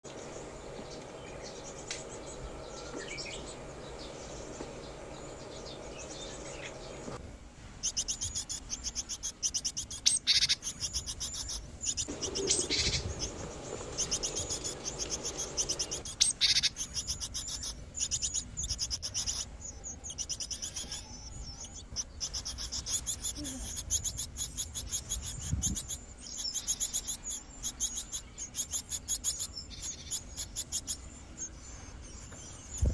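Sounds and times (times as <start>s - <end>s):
steady low hum: 0.1s - 32.9s
birds chirping rapid high calls: 7.8s - 32.9s.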